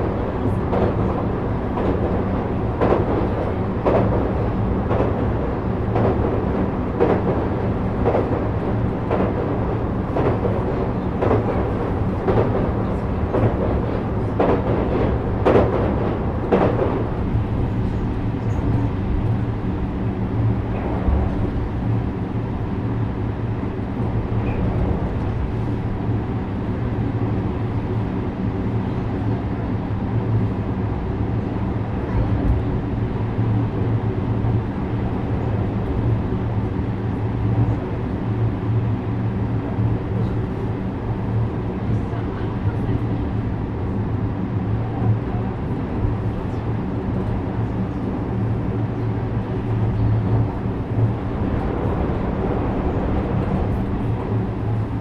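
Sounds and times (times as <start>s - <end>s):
train wheels clacking over rail joints: 0.0s - 19.4s
train motor hum: 0.0s - 29.4s, 32.0s - 55.0s
train running rumble: 0.0s - 55.0s.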